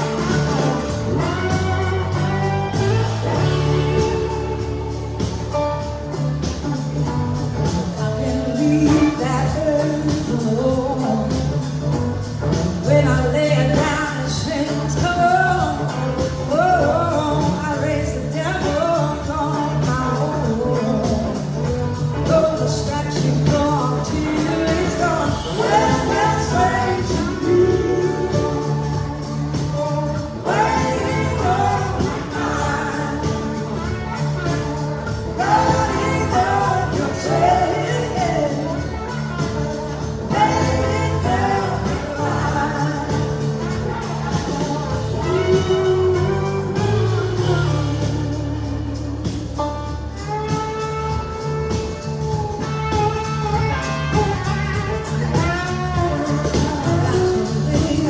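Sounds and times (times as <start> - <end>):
blues rock band playing: 0.0 - 58.0
person singing: 12.8 - 53.3.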